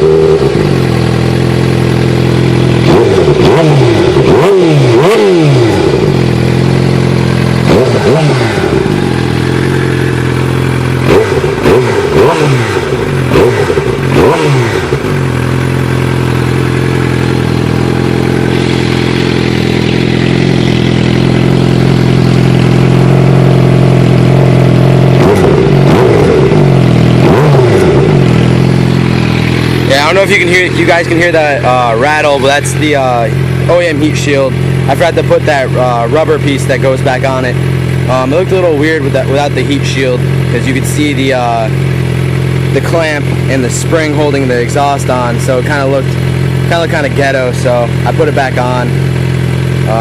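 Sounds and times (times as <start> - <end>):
motorcycle engine revving and idling: 0.0 - 50.0
exhaust heat shield rattle: 5.8 - 50.0.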